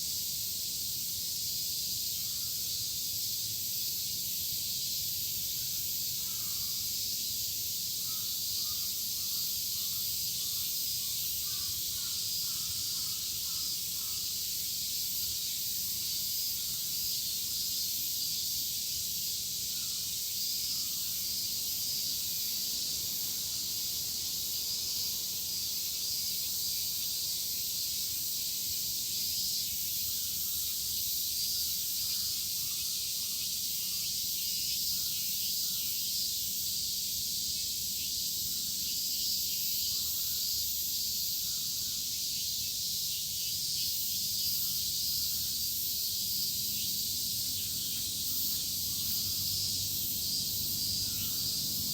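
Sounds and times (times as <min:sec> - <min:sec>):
cicadas buzzing: 0:00.0 - 0:51.9.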